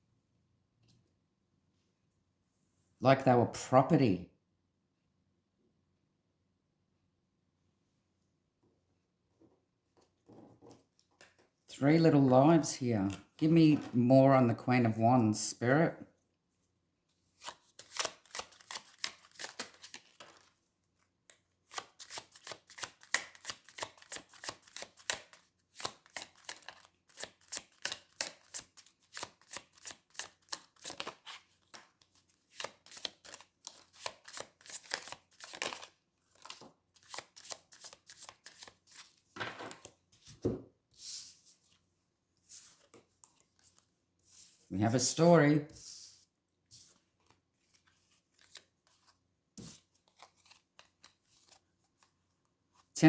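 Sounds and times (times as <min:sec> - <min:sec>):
cards being shuffled: 0:17.4 - 0:20.5, 0:21.3 - 0:41.8, 0:46.8 - 0:52.1.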